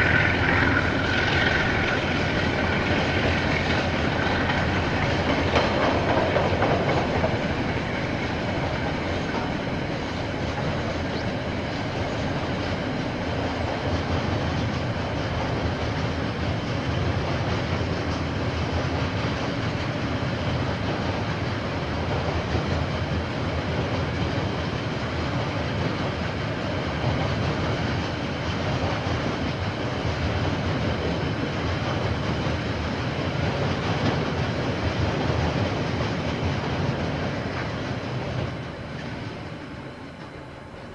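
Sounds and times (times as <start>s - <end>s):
train wheels rumbling and clattering: 0.0s - 40.9s.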